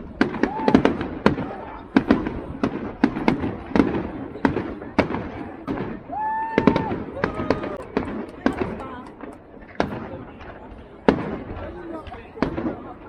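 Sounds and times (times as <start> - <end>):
fireworks banging: 0.0 - 13.0
rising firework whistle: 6.0 - 8.0.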